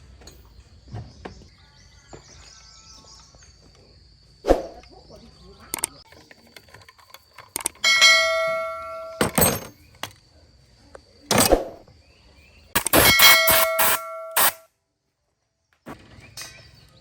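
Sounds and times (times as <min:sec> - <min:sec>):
ringing metal strikes: 0:07.8 - 0:09.7, 0:12.8 - 0:14.6.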